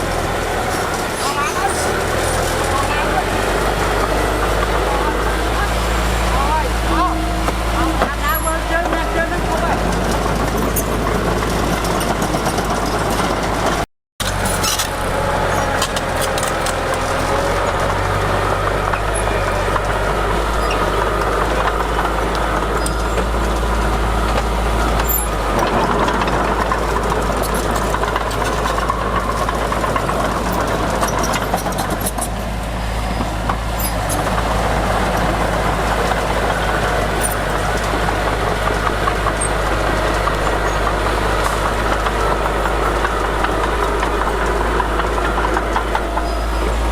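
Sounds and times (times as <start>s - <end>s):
diesel machinery running: 0.0s - 46.9s
machine whine: 14.2s - 46.9s.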